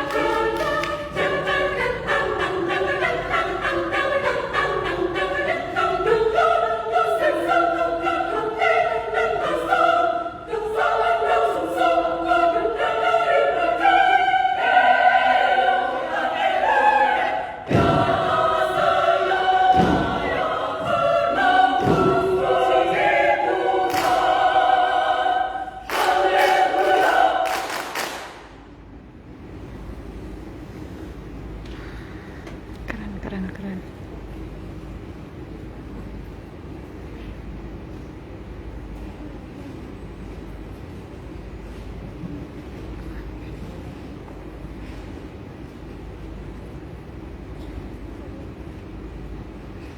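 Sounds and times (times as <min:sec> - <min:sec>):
women's choir singing: 0:00.0 - 0:28.8.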